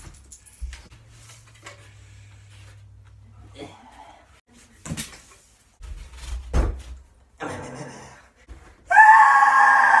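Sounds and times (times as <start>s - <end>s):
body thudding against door and floor: 5.8s - 7.1s.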